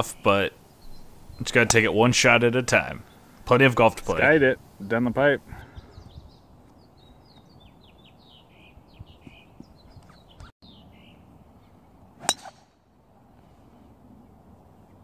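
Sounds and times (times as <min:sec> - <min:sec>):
birds chirping: 0:00.0 - 0:12.6
golf club striking ball: 0:12.2 - 0:12.7.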